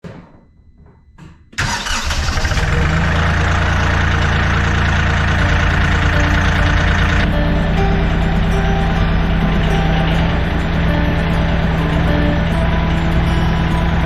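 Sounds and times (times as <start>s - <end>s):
tractor diesel engine starting: 1.6s - 14.0s.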